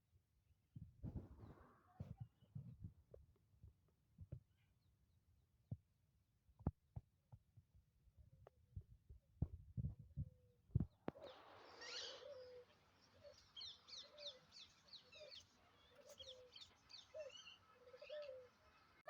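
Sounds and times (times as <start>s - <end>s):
faint bird chirps: 10.4s - 19.0s.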